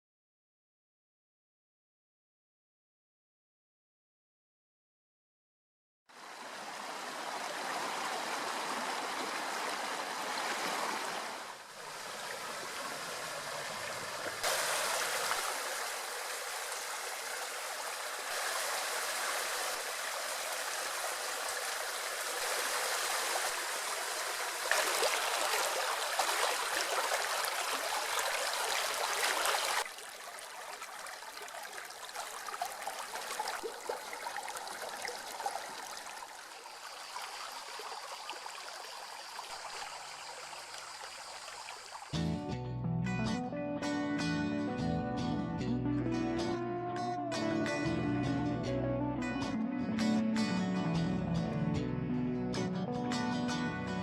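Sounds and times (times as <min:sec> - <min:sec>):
river water flowing: 0:06.1 - 0:42.2.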